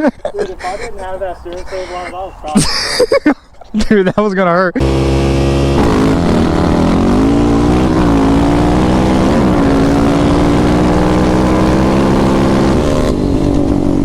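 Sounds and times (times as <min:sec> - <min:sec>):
off-road vehicle engine running: 0:04.8 - 0:14.0.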